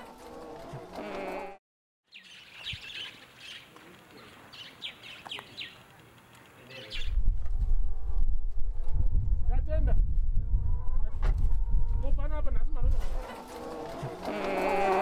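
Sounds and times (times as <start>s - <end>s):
birds chirping: 2.0s - 7.2s
loud low rumble: 7.2s - 12.4s.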